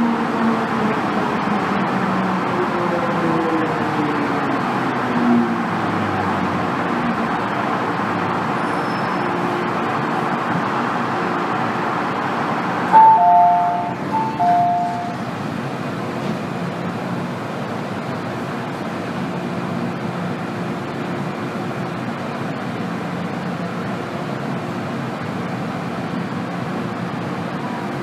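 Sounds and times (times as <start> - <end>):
metro car cabin noise: 0.0 - 28.0
two-note electronic chime: 13.0 - 15.2.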